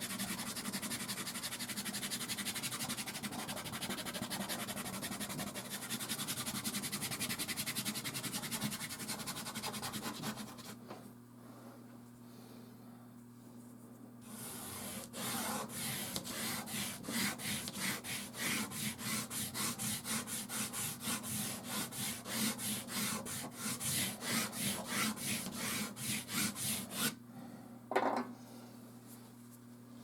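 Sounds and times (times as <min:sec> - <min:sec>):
scratchy rubbing on canvas: 0:00.0 - 0:10.8, 0:14.3 - 0:27.1.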